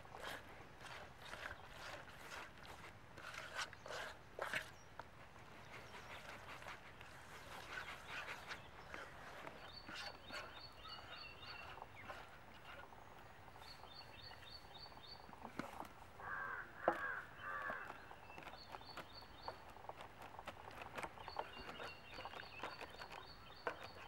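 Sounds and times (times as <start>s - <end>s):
birds chirping: 7.4s - 24.0s
harsh bird calls: 16.2s - 19.6s.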